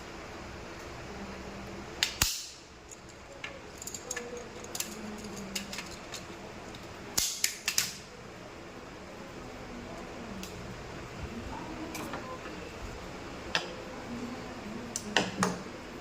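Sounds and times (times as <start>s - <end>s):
sharp clicks and snaps: 2.0s - 3.1s, 3.8s - 8.0s.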